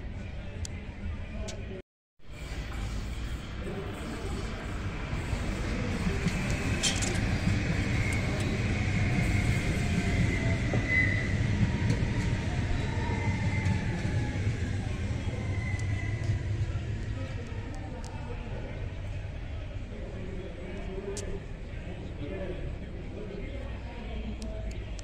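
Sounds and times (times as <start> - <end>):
train wheels rumbling on rail: 2.4 - 18.5.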